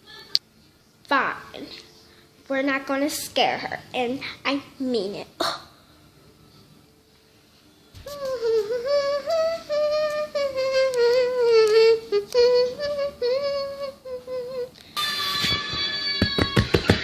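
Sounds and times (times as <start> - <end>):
girl humming: 8.0 - 14.8.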